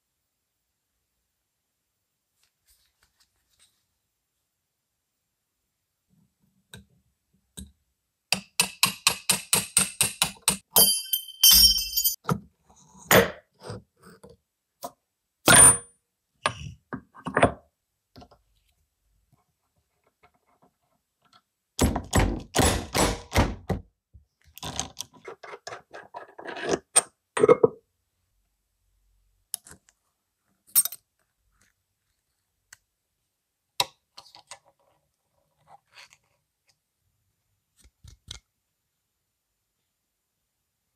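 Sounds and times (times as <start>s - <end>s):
tools knocking and clinking: 8.3s - 12.4s.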